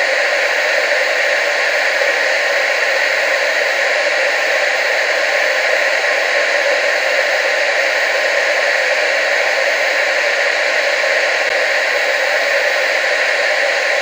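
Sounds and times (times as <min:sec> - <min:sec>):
tv static hiss: 0:00.0 - 0:14.0.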